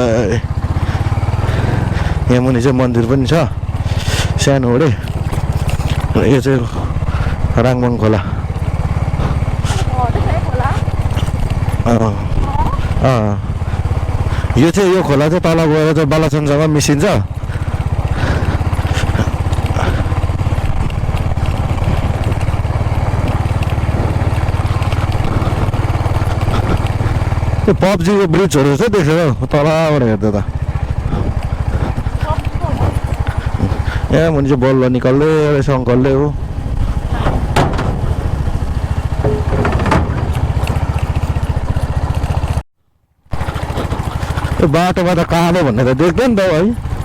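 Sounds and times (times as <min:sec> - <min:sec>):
motorcycle engine running: 0:00.0 - 0:42.6, 0:43.3 - 0:47.0
knocks on rough road: 0:17.3 - 0:27.6, 0:36.7 - 0:42.6.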